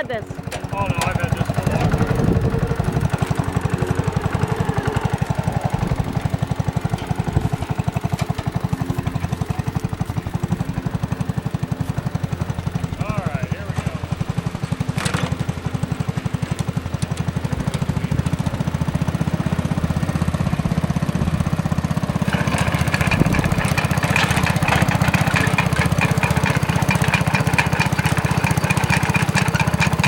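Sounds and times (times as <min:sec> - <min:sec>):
metallic rattle: 0:00.0 - 0:11.1, 0:22.1 - 0:30.0
small tractor engine running: 0:00.0 - 0:30.0.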